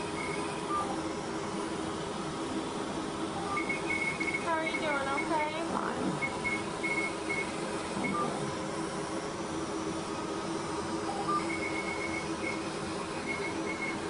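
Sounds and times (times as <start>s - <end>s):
laser machine humming: 0.0s - 14.0s.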